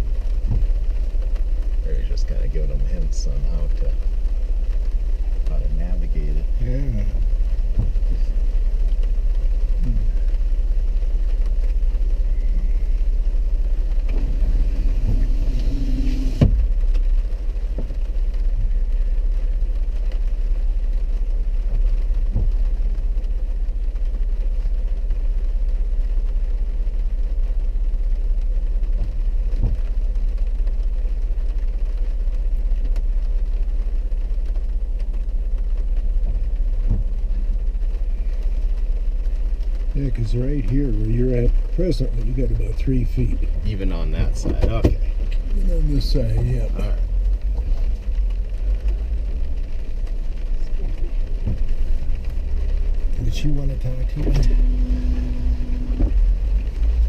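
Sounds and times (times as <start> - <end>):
faint hiss: 0.0 - 19.9
vehicle engine rumbling: 0.0 - 57.0
thump: 7.7 - 8.0, 15.0 - 16.7.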